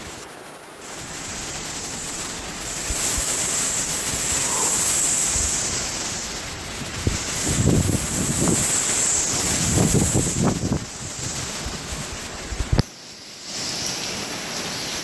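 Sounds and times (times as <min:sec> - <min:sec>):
driving rain: 0:00.0 - 0:15.0
strong wind gusts: 0:00.0 - 0:15.0
wind buffeting microphone: 0:00.9 - 0:12.9.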